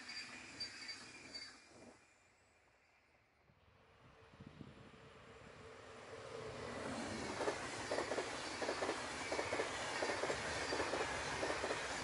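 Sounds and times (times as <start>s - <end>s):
steady train whine: 0.0s - 12.0s
approaching passenger train rumble: 3.8s - 12.0s.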